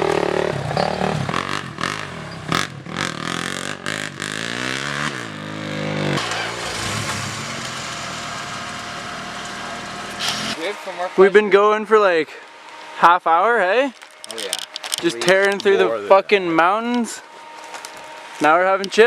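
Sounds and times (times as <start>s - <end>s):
off-road vehicle engine revving: 0.0s - 11.6s.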